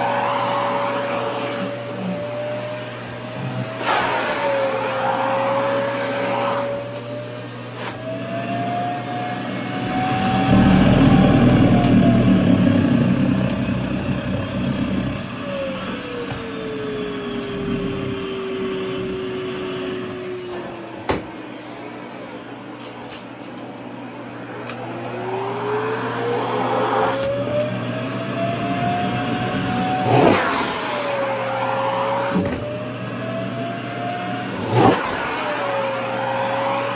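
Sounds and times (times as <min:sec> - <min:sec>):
vacuum cleaner motor whine: 0:00.0 - 0:36.9
low rushing: 0:09.6 - 0:16.2.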